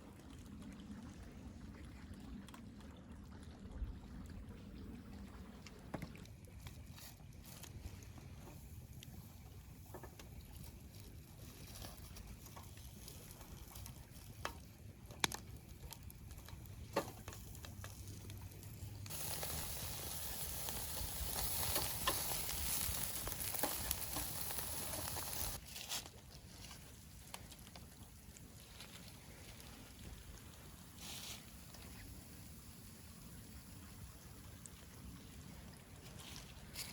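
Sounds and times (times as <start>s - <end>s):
fish sizzling on a grill: 8.5s - 26.0s, 26.8s - 34.2s.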